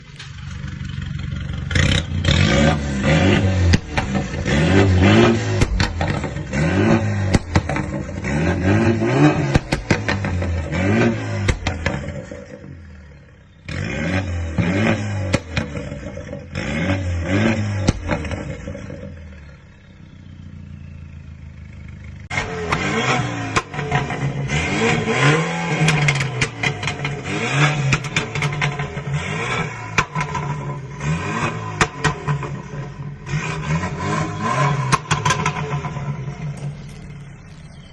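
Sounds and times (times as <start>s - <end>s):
car engine revving: 0.0s - 37.9s
exhaust pops and crackles: 3.4s - 12.7s, 14.6s - 16.7s, 17.4s - 19.2s, 22.3s - 33.1s, 34.7s - 37.5s.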